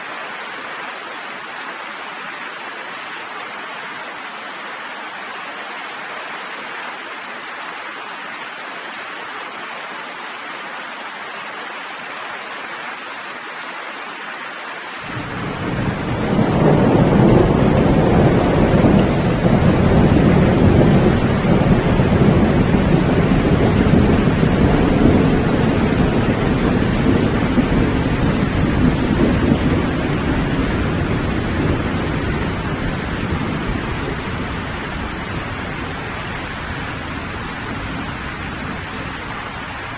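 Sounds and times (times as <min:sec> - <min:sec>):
rain falling: 0:00.0 - 0:39.9
thunder rumbling: 0:15.1 - 0:39.9.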